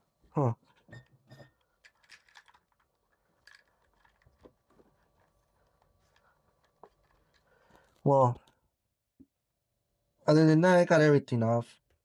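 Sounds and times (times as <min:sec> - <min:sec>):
plastic and metal parts clicking: 0:01.5 - 0:08.6.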